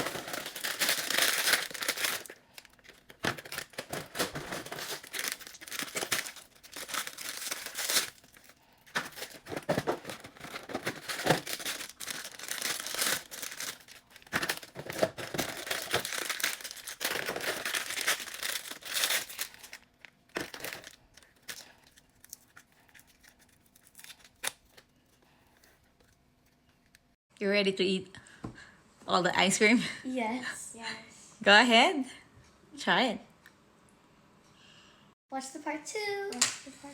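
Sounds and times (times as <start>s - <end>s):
wrappers tearing and crinkling: 0.0s - 24.9s.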